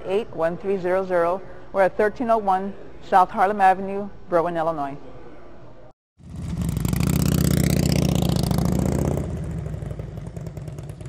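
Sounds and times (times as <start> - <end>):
motorcycle engine running: 6.2 - 11.0.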